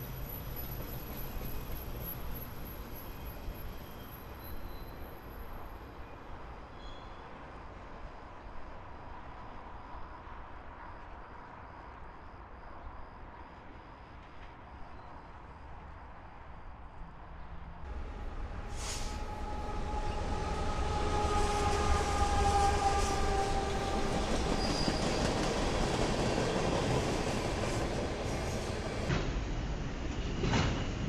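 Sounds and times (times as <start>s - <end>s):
steel wheels squealing: 0.0s - 5.5s, 6.7s - 7.2s, 18.7s - 26.7s
freight train rumble: 17.4s - 31.0s.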